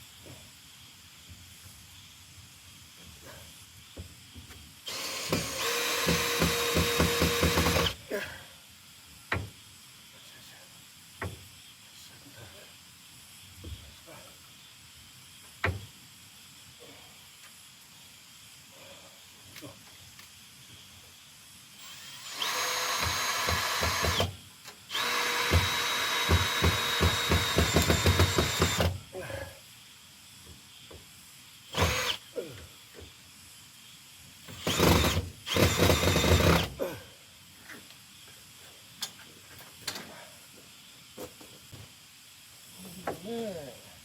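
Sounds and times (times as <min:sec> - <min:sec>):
power drill running: 0:04.9 - 0:08.0, 0:21.8 - 0:29.0, 0:31.7 - 0:32.2, 0:34.5 - 0:36.8.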